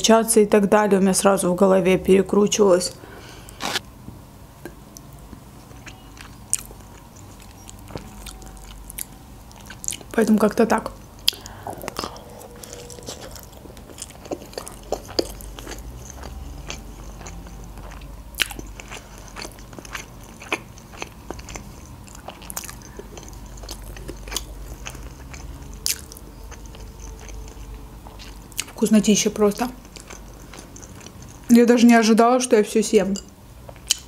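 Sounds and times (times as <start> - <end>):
person chewing food: 3.4 - 3.8, 4.6 - 10.2, 11.0 - 31.5, 33.6 - 34.0.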